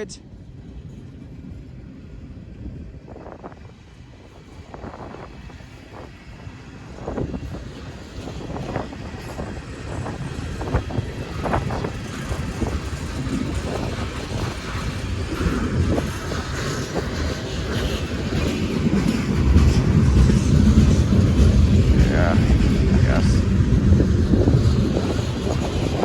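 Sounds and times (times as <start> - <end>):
low train rumble: 0.0 - 26.0
train wheels knocking: 7.3 - 26.0.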